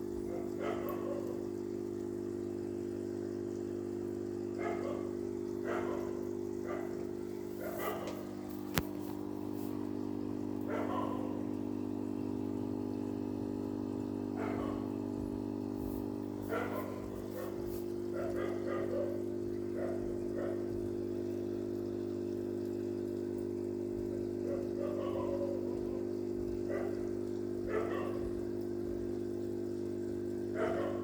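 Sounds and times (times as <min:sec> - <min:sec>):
dog barking: 0:00.2 - 0:01.4, 0:04.5 - 0:08.4, 0:10.6 - 0:11.6, 0:14.3 - 0:15.1, 0:16.3 - 0:20.8, 0:24.4 - 0:28.4, 0:30.5 - 0:31.0.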